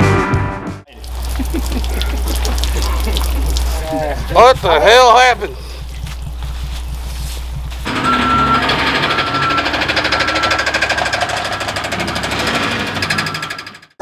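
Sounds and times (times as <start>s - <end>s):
fast mechanical rattle: 2.9s - 13.9s.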